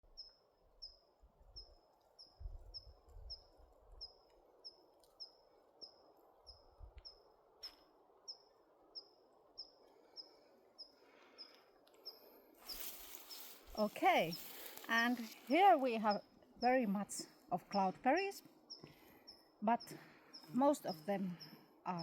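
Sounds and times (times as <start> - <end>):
wind rumble on microphone: 2.4 - 4.1
small bird calling: 2.7 - 22.0.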